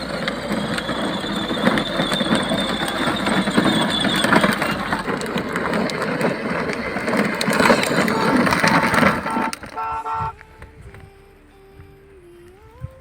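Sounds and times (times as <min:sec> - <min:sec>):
toy car motor whine: 0:00.0 - 0:10.3
rattling mechanical noise: 0:00.0 - 0:13.0.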